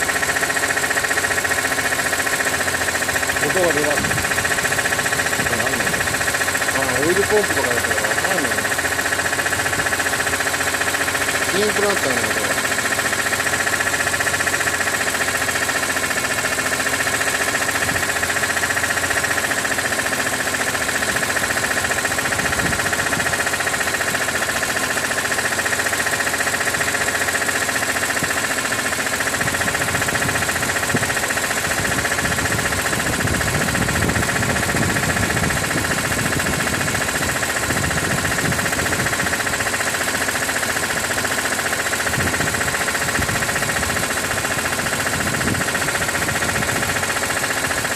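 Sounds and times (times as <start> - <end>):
car engine running with abnormal noise: 0.0 - 47.9.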